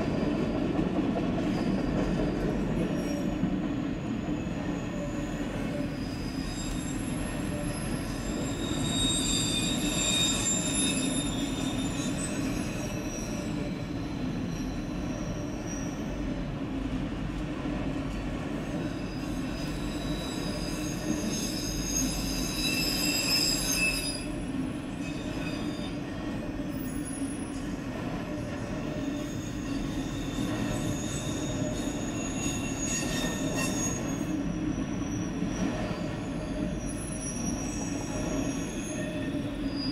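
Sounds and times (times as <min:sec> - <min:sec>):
train wheels rumbling on rail: 0:00.0 - 0:39.9
high-pitched wheel squeal: 0:04.4 - 0:16.2, 0:18.9 - 0:26.1, 0:28.9 - 0:39.9.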